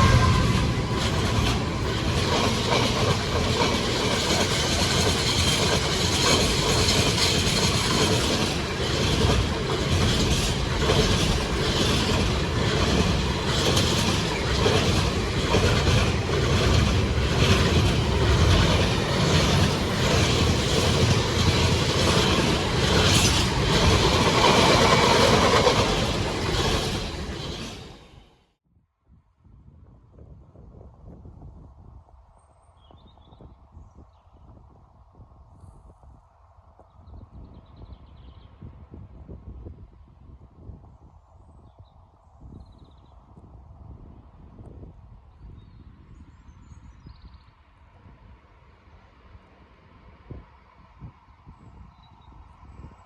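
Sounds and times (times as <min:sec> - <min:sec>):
train passing close by: 0:00.0 - 0:28.5
wheels clicking over rail joints: 0:00.6 - 0:28.1.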